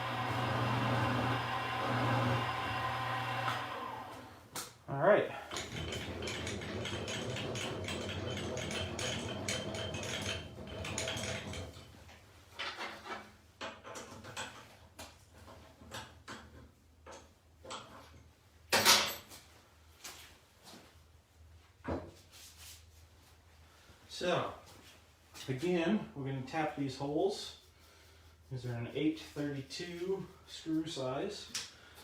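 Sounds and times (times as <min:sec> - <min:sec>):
drill press running: 0:00.0 - 0:04.4, 0:05.5 - 0:11.8.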